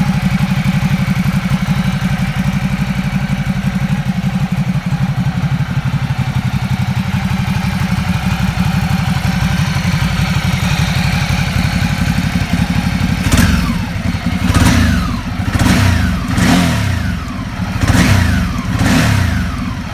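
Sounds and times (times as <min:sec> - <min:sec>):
motorcycle engine idling and revving: 0:00.0 - 0:19.9.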